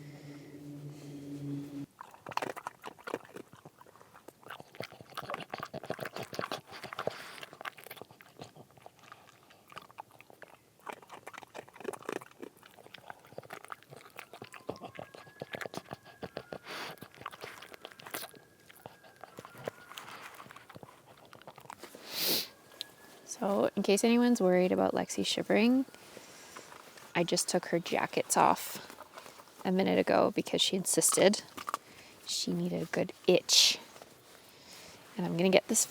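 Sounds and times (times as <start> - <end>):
low steady hum: 0.0 - 1.9
crunching and crackling: 1.8 - 24.0, 25.5 - 29.8, 30.4 - 35.9.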